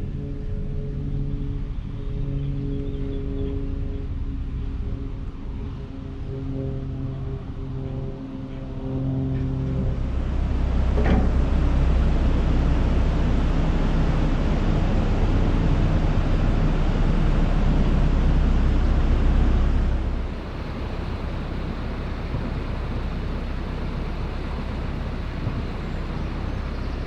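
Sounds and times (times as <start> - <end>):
boat engine rumble: 0.0 - 27.0
rushing water and wind: 11.5 - 27.0.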